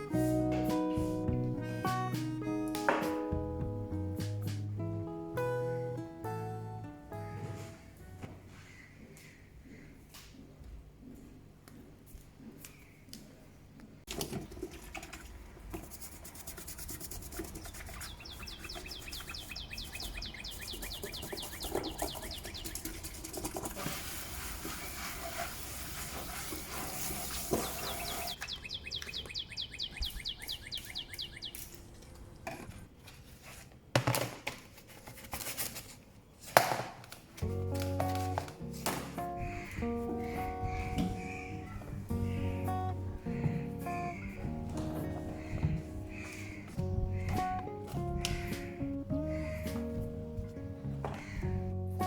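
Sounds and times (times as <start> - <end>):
bird rattling trill: 17.1 - 23.7
hissing rustling noise: 17.1 - 28.4.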